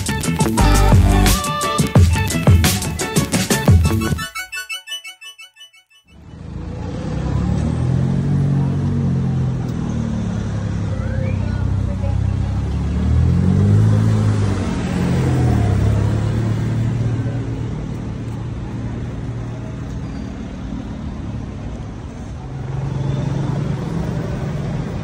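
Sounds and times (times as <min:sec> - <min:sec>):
low traffic rumble: 0:06.2 - 0:25.0.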